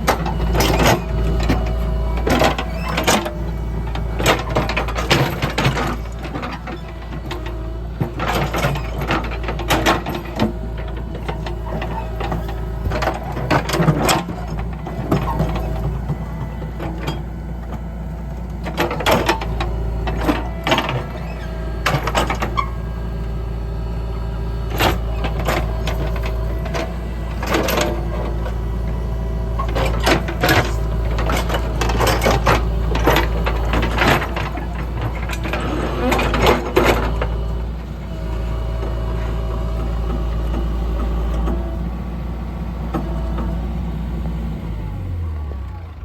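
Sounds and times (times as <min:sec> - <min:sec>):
knocks and clanks of machinery: 0:00.0 - 0:23.4, 0:24.6 - 0:42.0
diesel engine running: 0:00.0 - 0:46.0.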